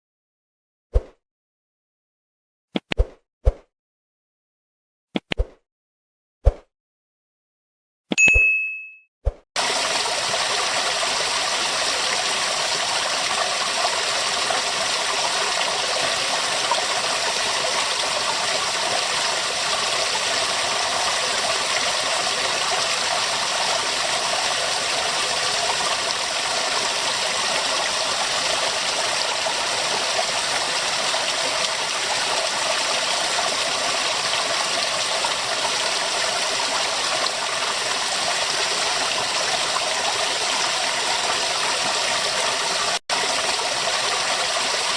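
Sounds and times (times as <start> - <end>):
water rushing over rocks: 9.6 - 44.9.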